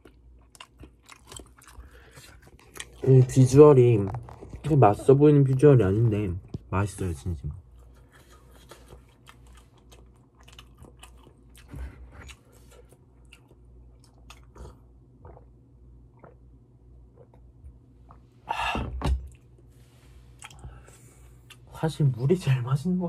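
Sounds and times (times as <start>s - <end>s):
person chewing with mouth smacks: 0.0s - 3.3s, 7.8s - 15.5s, 20.4s - 20.8s.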